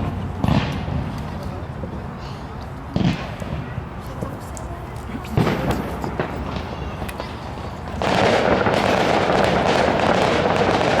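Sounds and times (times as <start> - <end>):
firework bang: 0.0 - 1.1, 3.0 - 3.7, 5.4 - 6.8, 8.0 - 11.0
continuous firework crackling: 0.0 - 11.0
firework pops: 0.4 - 1.6, 2.9 - 4.6.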